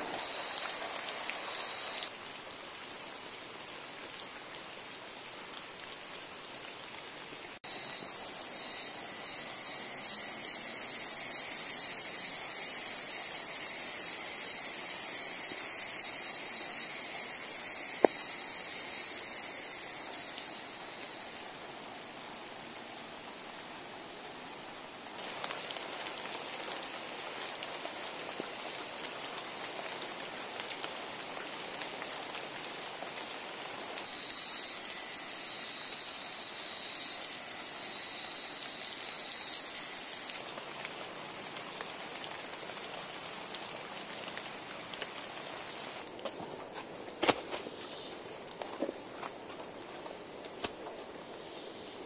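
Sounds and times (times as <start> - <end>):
drizzle on foliage: 0.0 - 7.8, 25.1 - 52.0.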